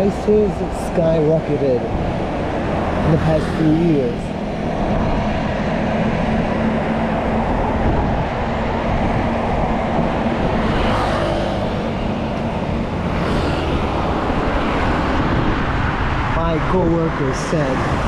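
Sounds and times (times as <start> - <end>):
road traffic rush: 0.0 - 18.0
vehicles passing by: 0.0 - 18.0
wind on microphone: 3.9 - 18.0.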